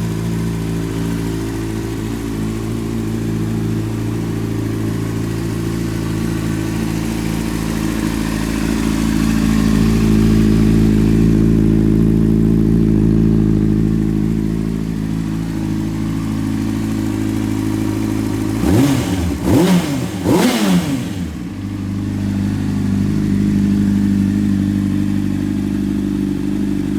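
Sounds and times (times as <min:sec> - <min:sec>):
motorcycle engine idling and revving: 0:00.0 - 0:26.9.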